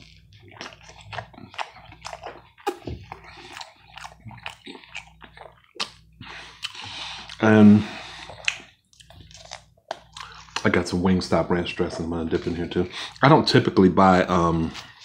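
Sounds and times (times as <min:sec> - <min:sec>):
chewing with mouth clicks: 0:00.0 - 0:10.9.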